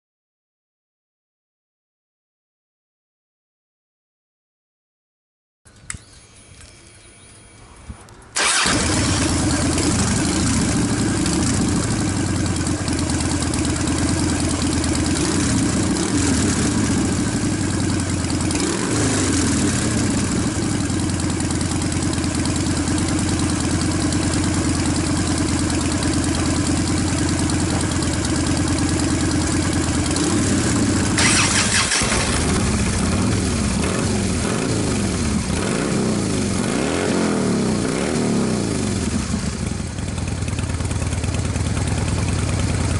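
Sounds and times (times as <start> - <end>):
motorcycle engine idling: 8.4 - 36.6, 38.7 - 42.9
motorcycle engine revving: 8.4 - 42.9.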